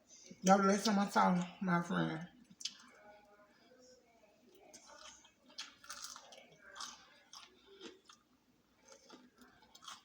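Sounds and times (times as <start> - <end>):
person chewing fried chicken: 4.6 - 10.0.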